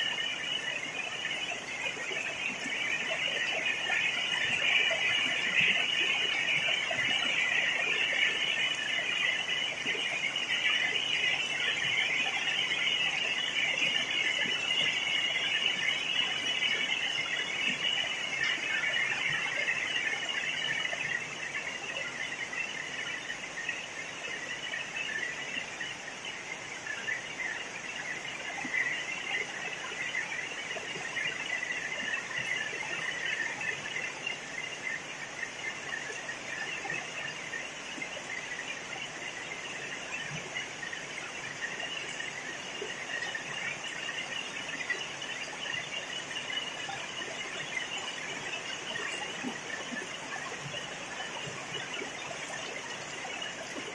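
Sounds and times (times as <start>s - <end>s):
insects chirping: 0.0s - 53.9s.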